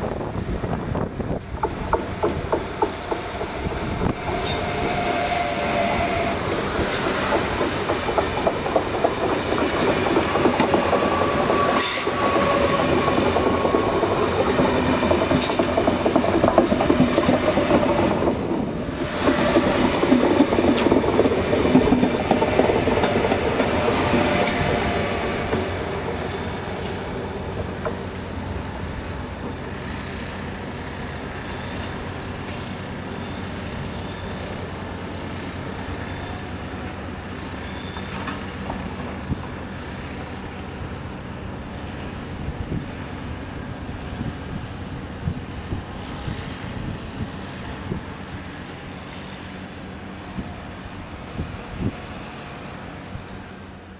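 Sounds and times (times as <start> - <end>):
train wheels rattling over rails: 0.8 - 33.0
train whining tones: 1.7 - 41.2.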